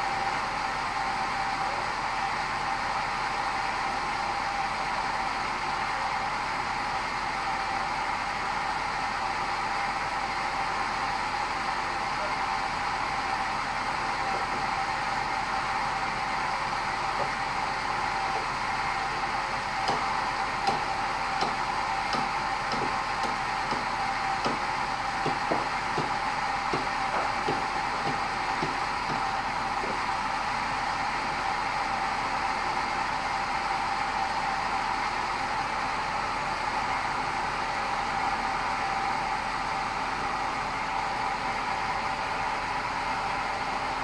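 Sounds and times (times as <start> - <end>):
bandsaw running: 18.2 - 30.0.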